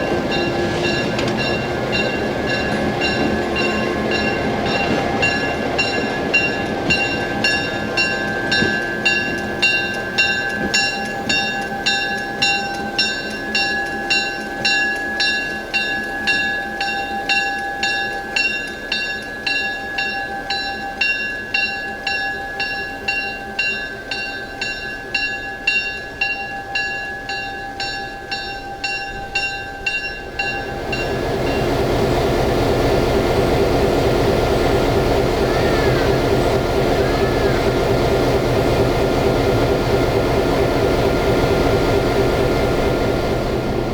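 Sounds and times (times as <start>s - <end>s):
railroad bell ringing: 0.0s - 43.9s
low rumble: 30.6s - 43.9s.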